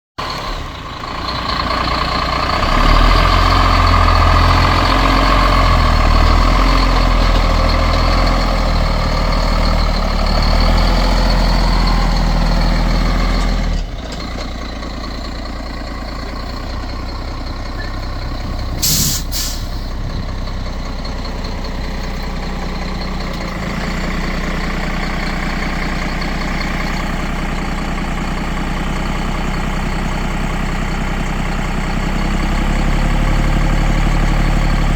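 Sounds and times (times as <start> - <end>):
truck diesel engine: 0.2 - 34.9
air hiss: 18.8 - 19.9.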